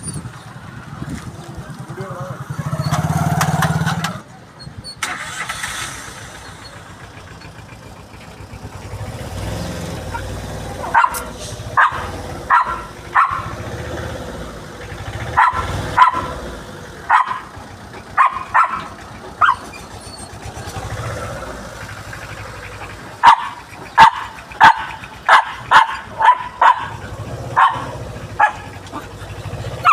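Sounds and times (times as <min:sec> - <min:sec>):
dog barking: 0:10.1 - 0:13.6, 0:15.3 - 0:16.4, 0:17.1 - 0:17.6, 0:18.2 - 0:19.7, 0:23.2 - 0:29.2.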